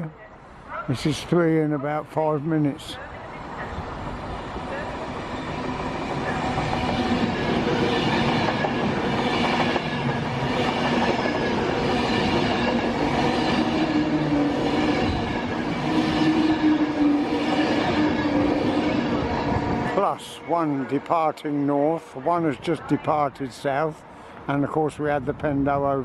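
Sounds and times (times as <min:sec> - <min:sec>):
train motor hum: 0:03.6 - 0:22.2
train wheels clattering on rails: 0:05.0 - 0:19.2.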